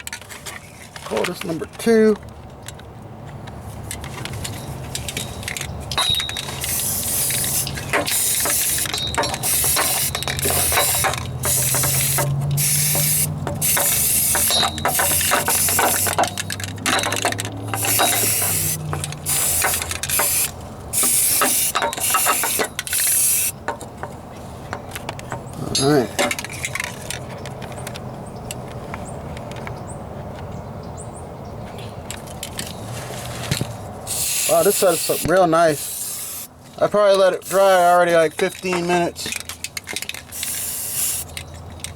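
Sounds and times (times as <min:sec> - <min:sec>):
aerosol spray can hissing: 0:06.6 - 0:16.2, 0:17.8 - 0:23.5, 0:34.1 - 0:36.5, 0:40.4 - 0:41.3.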